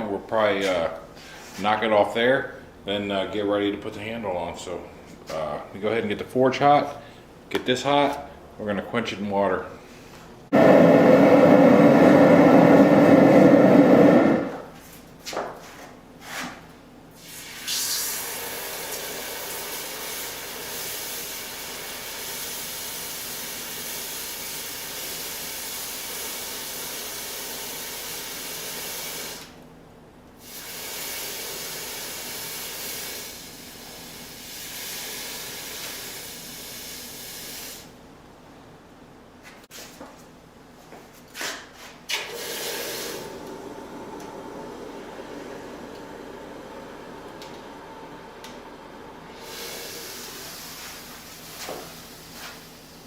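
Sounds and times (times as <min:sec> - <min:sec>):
forge burner hissing: 0:10.5 - 0:14.8, 0:17.2 - 0:29.6, 0:30.4 - 0:37.9, 0:42.2 - 0:53.0.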